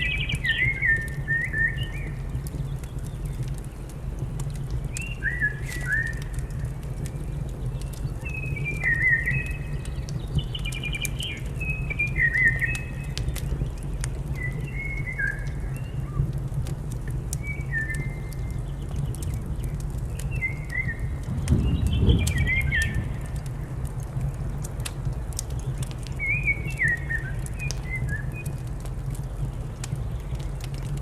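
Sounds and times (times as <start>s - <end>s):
small birds chirping: 0.0s - 24.7s, 25.3s - 31.0s
wood fire crackling: 0.0s - 31.0s
low rumble: 21.0s - 24.6s.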